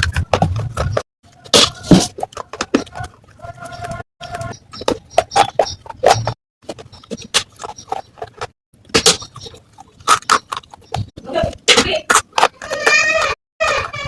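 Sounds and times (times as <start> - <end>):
crunching clay pieces being chewed: 0.0 - 14.0.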